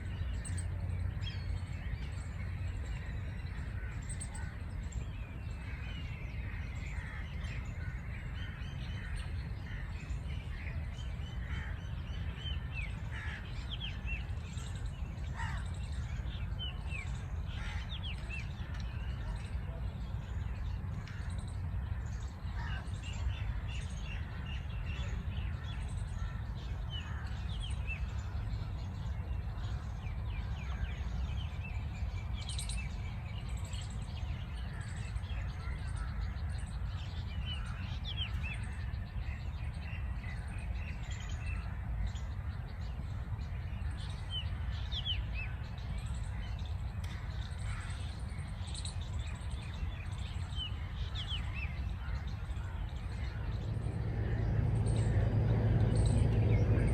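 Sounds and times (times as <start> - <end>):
steady low rumble: 49.2 - 56.9.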